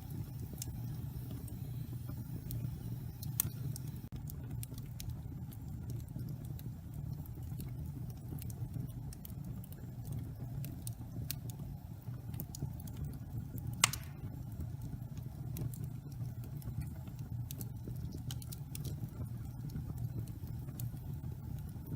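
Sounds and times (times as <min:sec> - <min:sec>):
fire crackling: 0:00.0 - 0:21.9
wood fire rumbling: 0:00.0 - 0:21.9
sharp loud pop of fire: 0:13.8 - 0:14.4.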